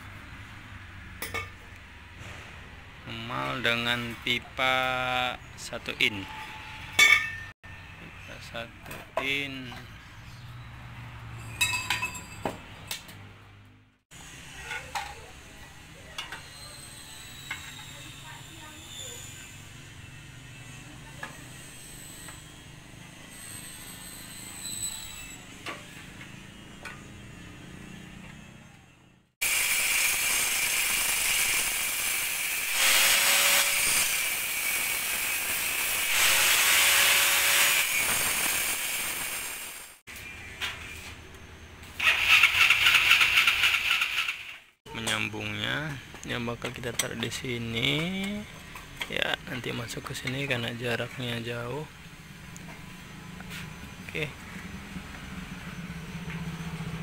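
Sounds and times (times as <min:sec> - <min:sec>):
metal pipes clinking: 0:06.2 - 0:07.5, 0:11.5 - 0:12.5
welding hiss: 0:29.4 - 0:40.0.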